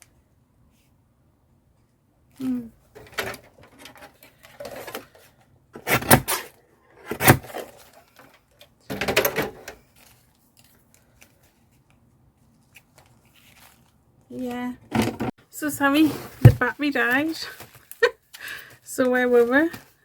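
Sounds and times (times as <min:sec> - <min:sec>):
rustling: 0:09.7 - 0:20.0.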